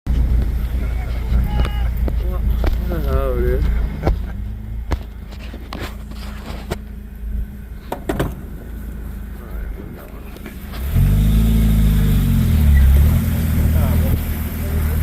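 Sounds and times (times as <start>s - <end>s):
knocks and rattles: 7.8s - 8.7s
engine running and revving: 8.6s - 15.0s.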